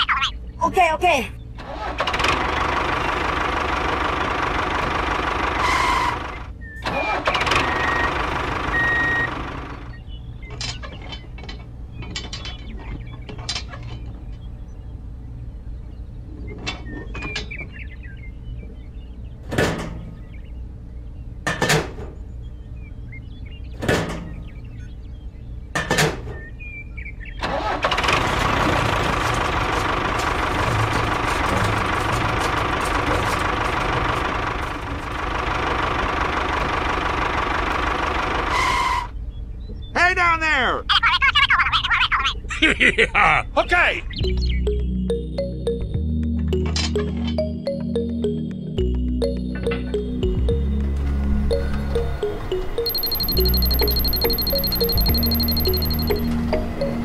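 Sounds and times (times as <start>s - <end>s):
engine running: 1.4s - 12.0s, 27.4s - 39.3s, 44.2s - 57.0s.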